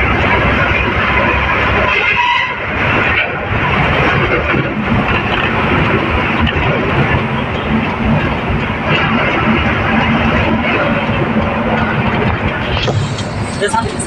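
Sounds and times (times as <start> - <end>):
road noise: 0.0 - 14.0
truck engine drone: 0.0 - 14.0
wind noise: 0.0 - 14.0.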